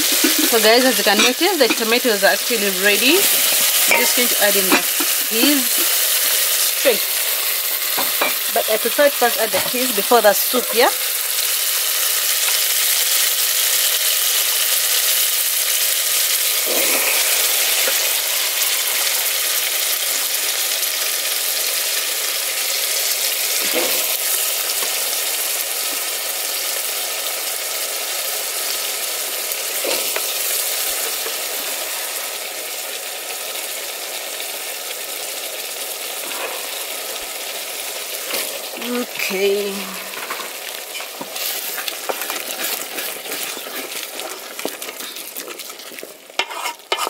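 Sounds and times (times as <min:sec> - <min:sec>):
sauce sizzling in a pot: 0:00.0 - 0:47.0
wooden spoon scraping a pot: 0:03.2 - 0:06.4, 0:40.1 - 0:47.0.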